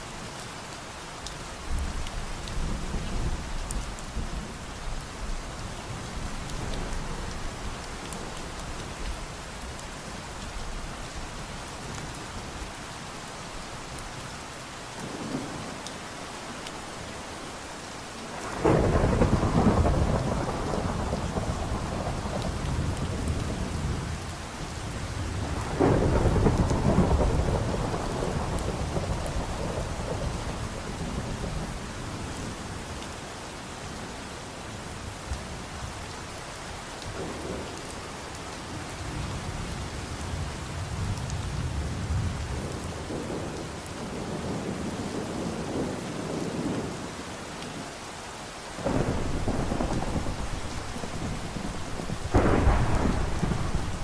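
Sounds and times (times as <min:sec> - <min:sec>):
steady rainfall: 0:00.0 - 0:54.0
thunder rolling: 0:18.4 - 0:23.9, 0:25.2 - 0:31.6, 0:48.8 - 0:54.0.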